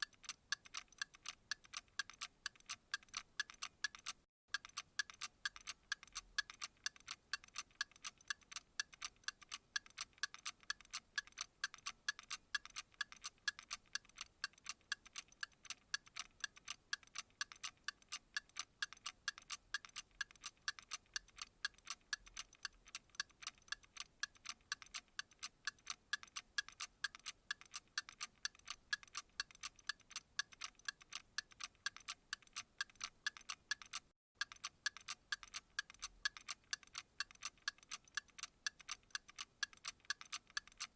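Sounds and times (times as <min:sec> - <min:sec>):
clock ticking: 0:00.0 - 0:40.9.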